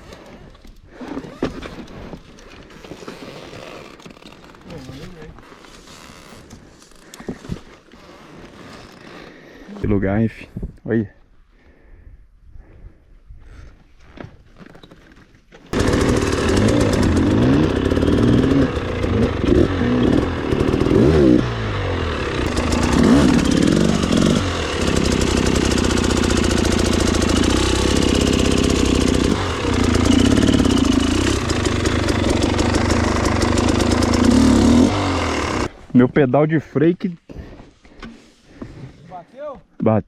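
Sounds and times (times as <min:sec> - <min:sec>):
dirt bike engine revving: 0:15.8 - 0:35.7.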